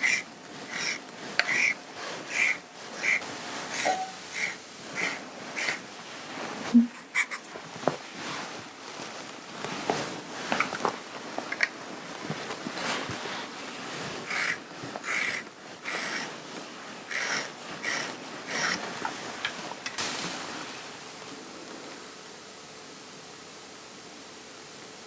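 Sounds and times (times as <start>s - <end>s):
hiss: 0.0s - 6.1s, 14.2s - 16.4s, 17.1s - 25.0s
swishing strokes over fabric: 0.0s - 20.6s.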